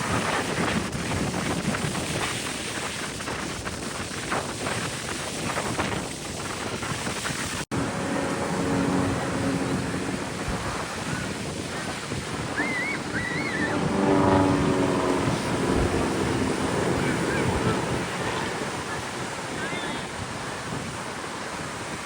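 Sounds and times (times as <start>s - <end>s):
wind buffeting microphone: 0.0s - 22.0s
ocean surf: 7.2s - 22.0s.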